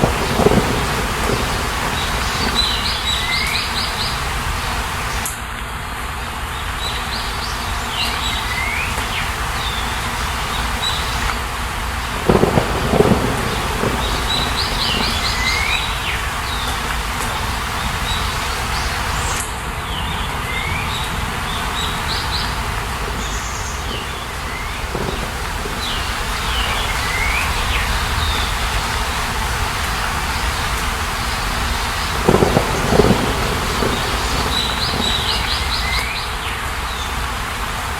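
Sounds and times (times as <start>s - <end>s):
songbird chirping: 0.0s - 4.4s, 12.1s - 29.0s, 30.3s - 37.2s.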